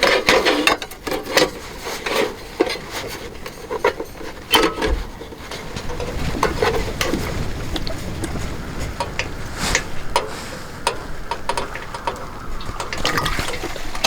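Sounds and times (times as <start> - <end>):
low rumble: 5.7 - 14.0.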